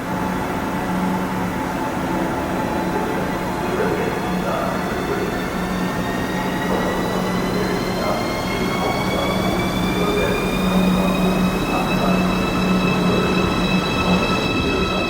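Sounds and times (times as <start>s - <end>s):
electric train traction whine: 0.0s - 15.0s
low hum: 0.0s - 15.0s
train rumble: 0.0s - 15.0s.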